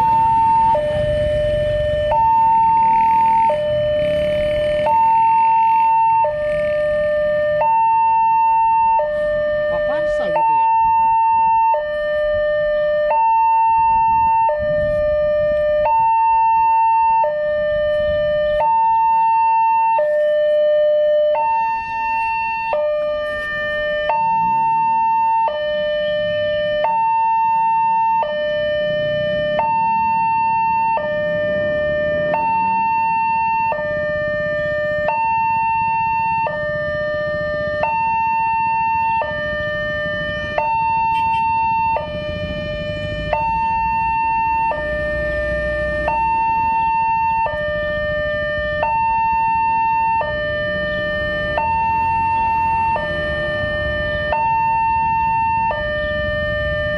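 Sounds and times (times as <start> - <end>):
low rumble: 0.0 - 4.9
two-tone crossing alarm: 0.0 - 56.9.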